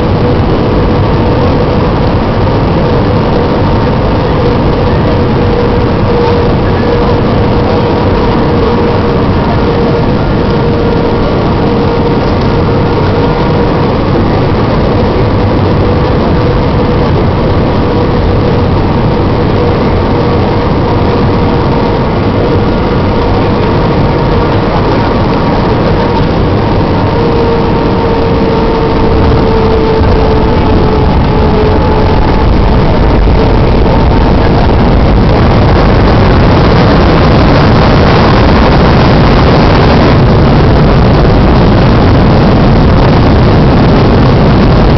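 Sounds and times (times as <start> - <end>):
held whine: 0.0 - 44.9
jet engines and airflow rushing: 0.0 - 44.9.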